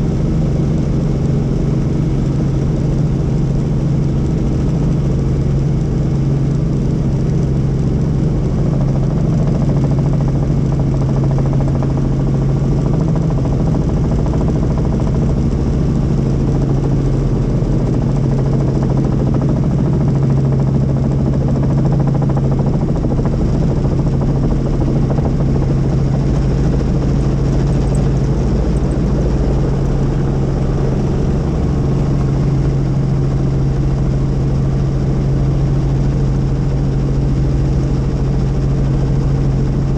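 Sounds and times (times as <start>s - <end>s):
helicopter rotors and engine: 0.0s - 39.9s.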